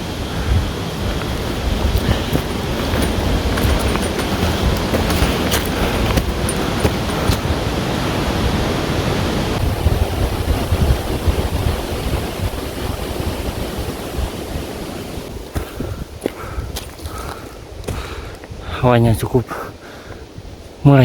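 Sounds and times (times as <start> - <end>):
wind buffeting microphone: 0.0 - 19.2, 19.8 - 20.9
strong wind blowing: 0.0 - 21.0.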